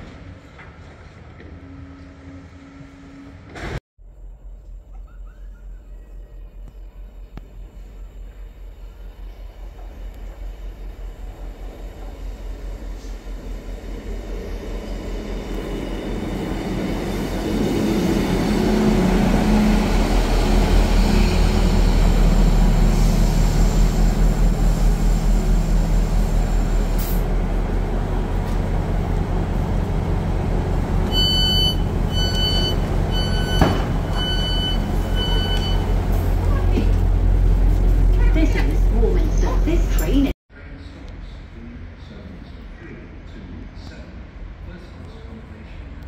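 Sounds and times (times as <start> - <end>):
train engine humming: 0.0 - 40.3
electronic beeps: 31.1 - 35.9.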